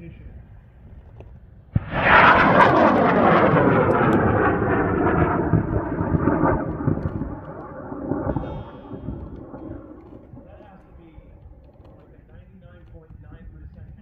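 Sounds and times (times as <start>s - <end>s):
rocket motor roaring: 1.8s - 12.2s.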